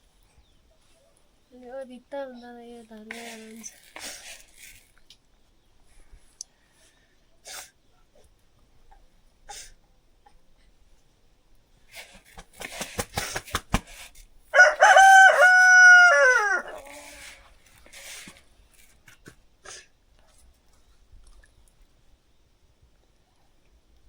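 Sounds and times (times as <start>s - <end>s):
rooster crowing: 14.5s - 17.4s.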